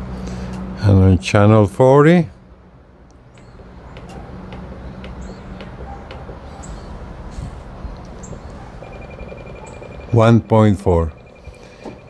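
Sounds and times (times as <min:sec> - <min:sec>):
bird chirping: 0:03.2 - 0:10.4.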